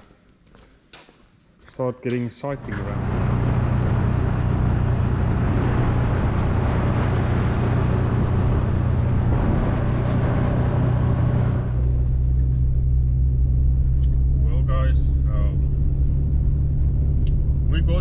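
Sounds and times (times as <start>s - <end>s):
road noise hiss: 2.1s - 12.4s
vehicle engine hum: 2.1s - 18.0s.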